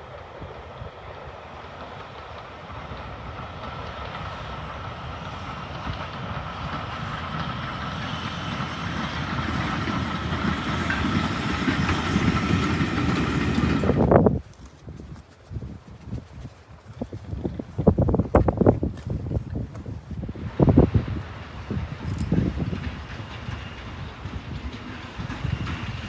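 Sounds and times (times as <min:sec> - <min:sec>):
steam train rumbling on rails: 0:00.0 - 0:26.0.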